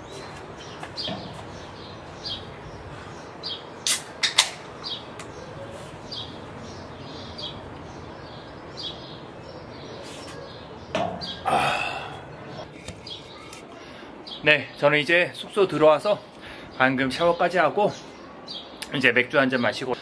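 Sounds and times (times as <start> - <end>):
bird chirping: 0.0 - 4.0, 4.8 - 13.6.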